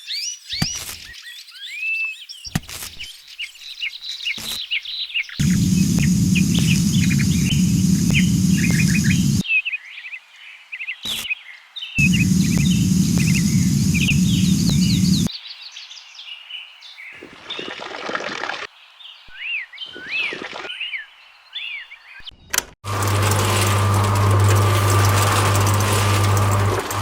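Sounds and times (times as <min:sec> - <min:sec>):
birds chirping: 0:03.9 - 0:09.4, 0:12.0 - 0:15.3
loud rushing noise: 0:05.4 - 0:09.4, 0:12.0 - 0:15.3
small electric motor humming: 0:05.4 - 0:09.4, 0:12.0 - 0:15.3, 0:22.9 - 0:27.0.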